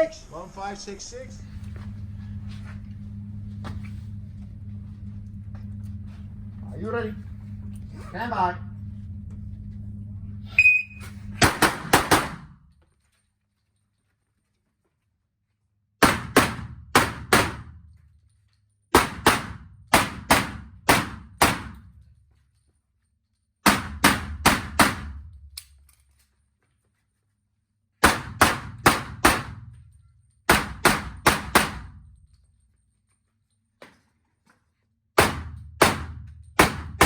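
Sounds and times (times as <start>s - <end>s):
handgun shots: 11.4s - 12.5s, 16.0s - 17.7s, 19.0s - 21.8s, 23.6s - 25.2s, 28.0s - 29.6s, 30.5s - 32.0s, 35.2s - 37.0s.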